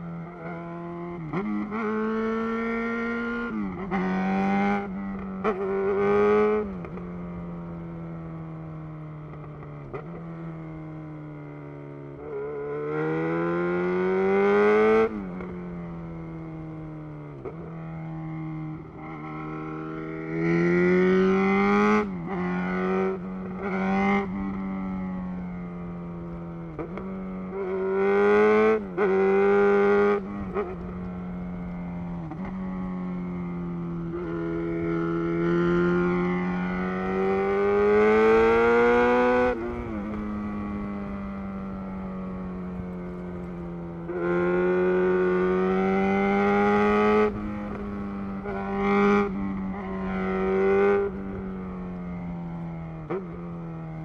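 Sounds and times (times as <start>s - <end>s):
motorcycle engine revving: 17.4s - 53.7s.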